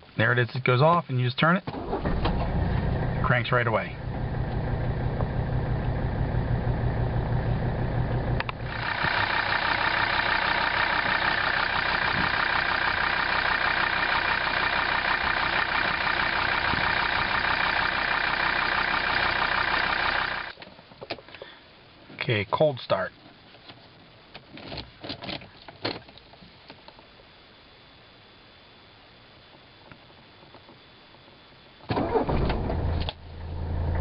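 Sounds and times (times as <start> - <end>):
diesel engine idling: 2.0 - 20.5
click: 8.4 - 8.6.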